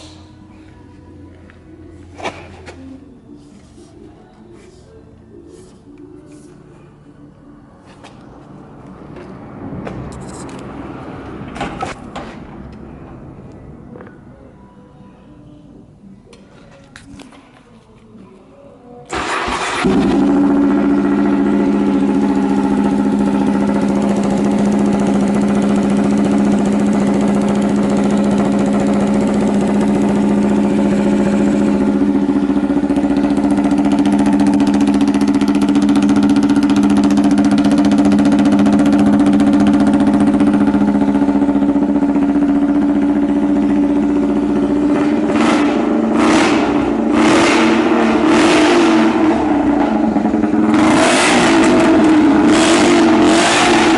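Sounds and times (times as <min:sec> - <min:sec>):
engine revving: 0:19.1 - 0:53.9
motorcycle engine idling: 0:19.1 - 0:53.9.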